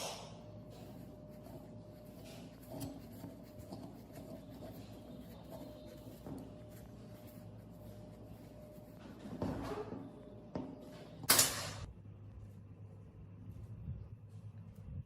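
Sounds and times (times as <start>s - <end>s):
scratching and rubbing: 0.6s - 9.0s.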